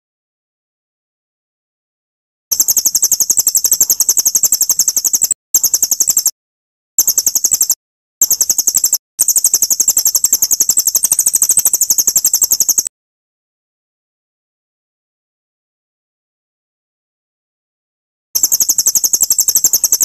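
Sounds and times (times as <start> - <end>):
high-pitched songbird chatter: 2.5 - 6.3, 7.0 - 12.9, 18.4 - 20.0.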